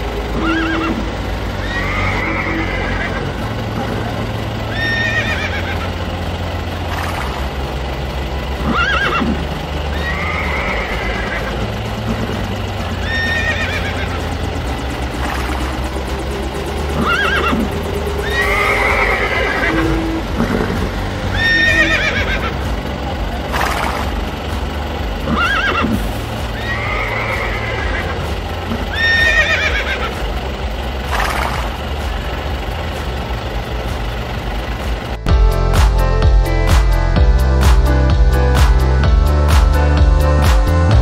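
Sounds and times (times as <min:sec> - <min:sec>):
background music: 0:00.0 - 0:41.0
horse whinnying: 0:00.4 - 0:01.0, 0:01.6 - 0:03.2, 0:04.7 - 0:05.8, 0:08.6 - 0:11.5, 0:13.0 - 0:14.0, 0:17.0 - 0:20.7, 0:21.3 - 0:22.5, 0:25.3 - 0:26.0, 0:26.6 - 0:28.1, 0:28.9 - 0:30.1
loud electronic music: 0:08.6 - 0:41.0.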